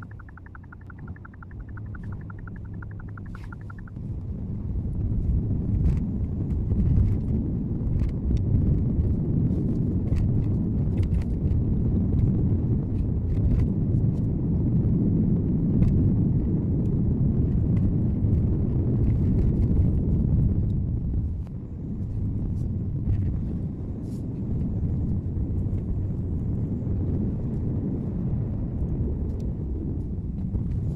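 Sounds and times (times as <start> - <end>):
faint ticks: 0.0 - 3.9.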